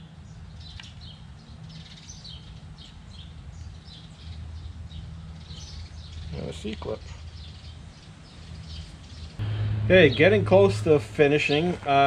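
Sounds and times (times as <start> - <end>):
small birds chirping: 0.0 - 12.0
low steady hum: 8.8 - 12.0.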